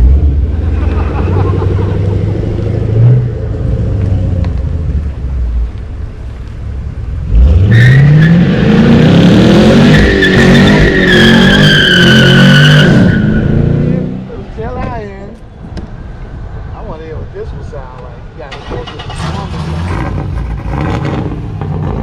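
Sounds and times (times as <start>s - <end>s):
car engine revving: 0.0s - 5.2s, 6.3s - 14.6s, 18.5s - 22.0s
tyres squealing: 9.8s - 13.9s.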